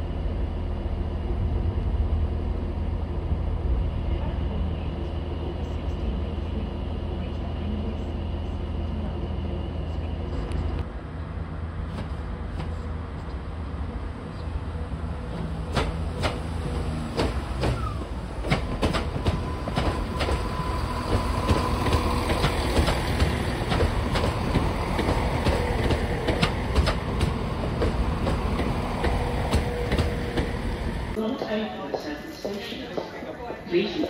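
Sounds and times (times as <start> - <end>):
diesel train rumble: 0.0 - 31.2
wheels clunking over rail joints: 15.4 - 31.2.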